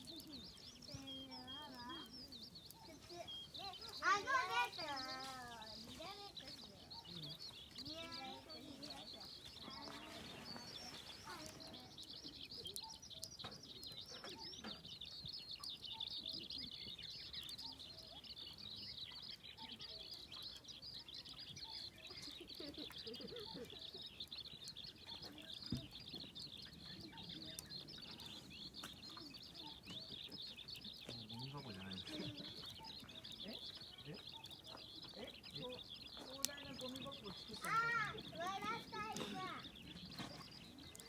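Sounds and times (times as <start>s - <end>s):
birds chirping: 0.0s - 41.0s.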